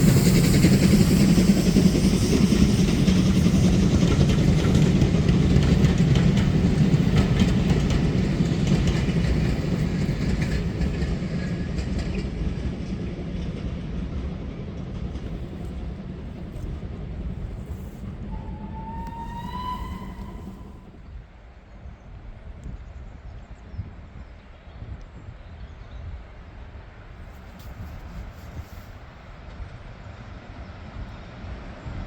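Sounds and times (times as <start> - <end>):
train wheels clicking over rails: 0.0 - 13.7, 14.8 - 20.9
rising tone: 18.0 - 20.9.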